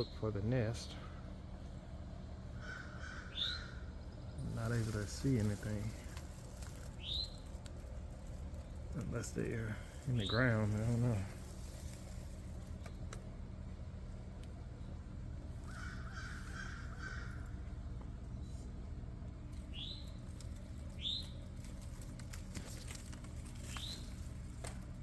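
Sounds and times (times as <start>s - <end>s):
steady low hum: 0.0s - 25.0s
harsh cawing bird call: 2.5s - 4.2s, 15.6s - 17.9s.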